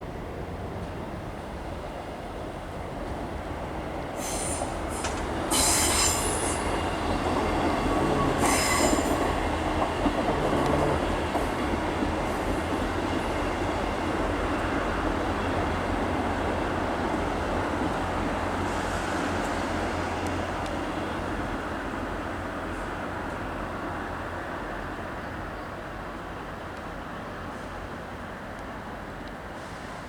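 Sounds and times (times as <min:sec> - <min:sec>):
train rumble: 0:00.0 - 0:30.0
high-pitched metallic wheel squeals: 0:08.0 - 0:09.1.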